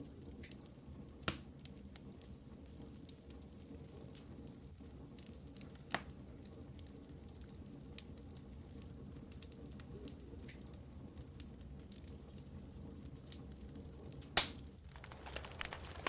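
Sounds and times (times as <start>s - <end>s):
wood fire crackling: 0.1s - 16.0s
sharp pop from fire: 1.3s - 1.5s, 14.4s - 14.6s.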